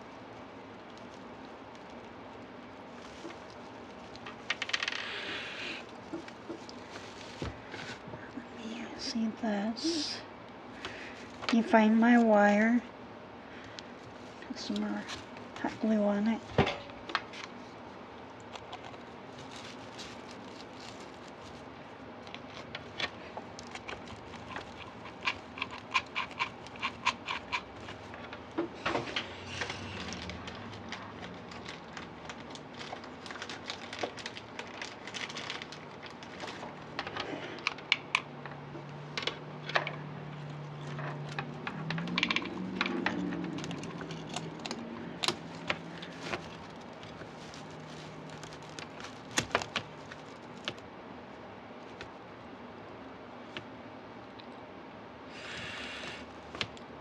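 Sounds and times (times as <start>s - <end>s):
low steady hum: 0.0s - 57.0s
tinsel and ornaments rustling: 19.0s - 21.7s, 42.5s - 50.7s.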